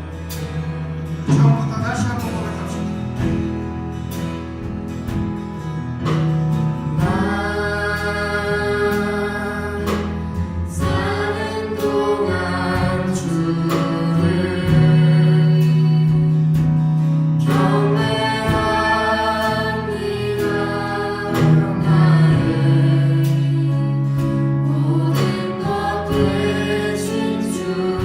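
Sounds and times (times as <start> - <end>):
praise band playing: 0.0 - 28.0
singers holding long notes: 6.9 - 16.7, 17.4 - 28.0.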